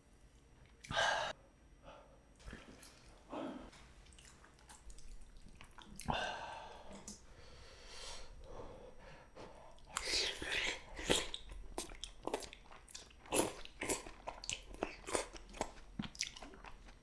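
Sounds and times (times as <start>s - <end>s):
wet chewing and slurping: 2.4s - 6.3s, 9.6s - 17.0s.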